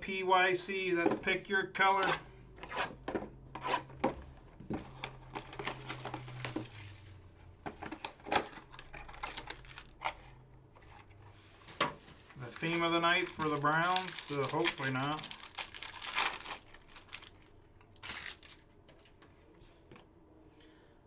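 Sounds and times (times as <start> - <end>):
wrappers tearing and crinkling: 4.9 - 7.2, 8.5 - 10.1, 12.4 - 19.1
cards being shuffled: 12.4 - 17.2.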